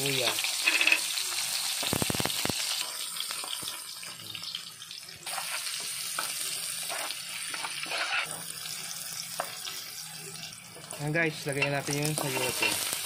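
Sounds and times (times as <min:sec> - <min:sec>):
garlic and onion sizzling in oil: 0:00.0 - 0:13.0
metal spatula scraping a wok: 0:00.4 - 0:01.2, 0:05.3 - 0:05.8, 0:06.8 - 0:08.5, 0:10.8 - 0:13.0.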